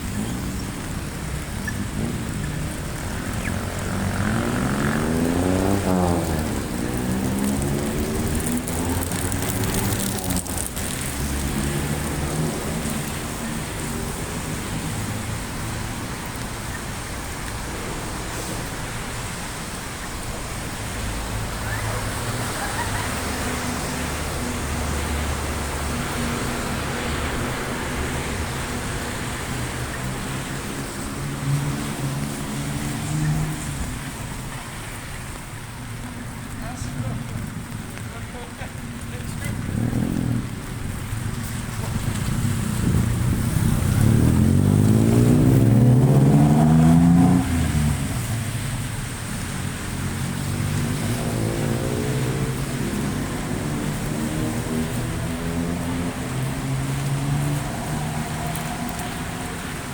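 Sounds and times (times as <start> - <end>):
vehicle passing close: 0.0 - 16.0, 39.2 - 59.9
heavy rain: 0.0 - 59.9
traffic on wet street: 0.0 - 59.9.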